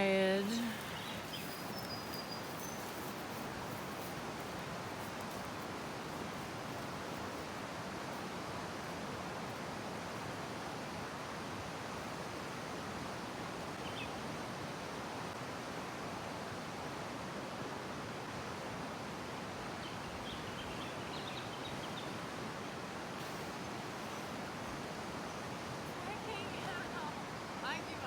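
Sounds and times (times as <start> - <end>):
river rushing: 0.0 - 21.1, 22.3 - 28.0
faint bird chirps: 0.5 - 3.2.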